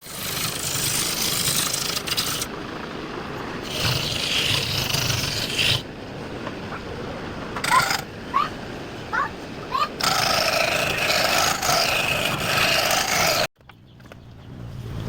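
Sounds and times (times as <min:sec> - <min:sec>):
tool scraping spinning wood: 0:00.0 - 0:02.5, 0:03.6 - 0:05.8, 0:07.6 - 0:08.1, 0:09.9 - 0:13.5.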